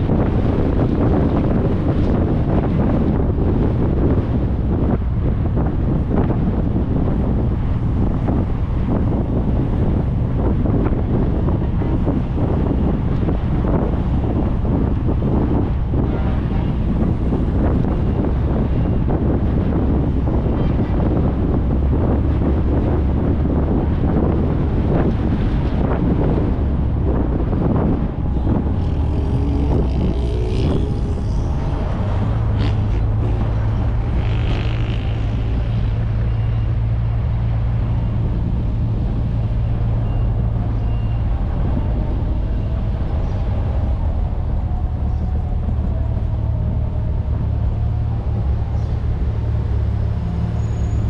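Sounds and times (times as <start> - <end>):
tyre and wind noise: 0.0 - 51.0
car engine humming: 25.8 - 40.6.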